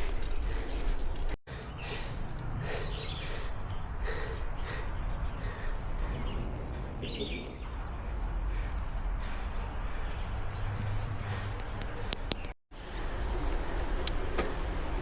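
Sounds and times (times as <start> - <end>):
bird chirps: 0.0 - 10.9
wind and bicycle riding rumble: 0.0 - 15.0.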